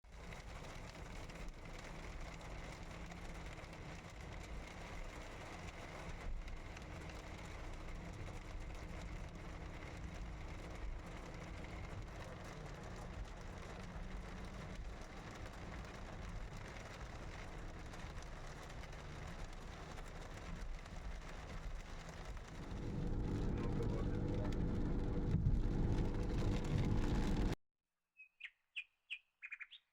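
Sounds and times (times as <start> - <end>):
rain falling: 0.1 - 27.6
low engine hum: 1.1 - 27.6.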